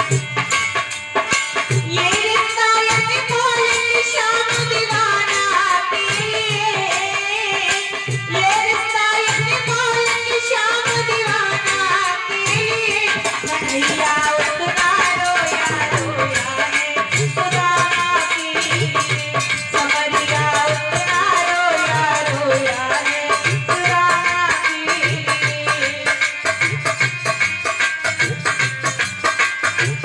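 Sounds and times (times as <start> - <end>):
rattling hand percussion: 0.0 - 30.0
repeating drum beat: 10.9 - 30.0.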